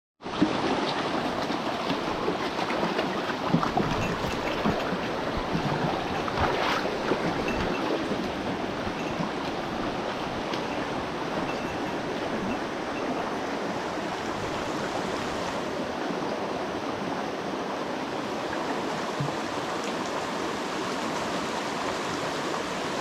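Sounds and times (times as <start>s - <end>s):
small water splashes: 0.2s - 15.7s
stream rushing over rocks: 0.2s - 23.0s.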